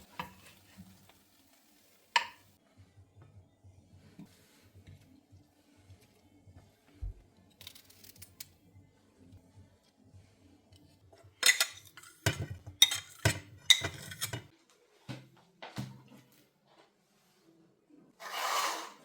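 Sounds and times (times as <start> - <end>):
dishes and utensils clinking: 11.2 - 14.5.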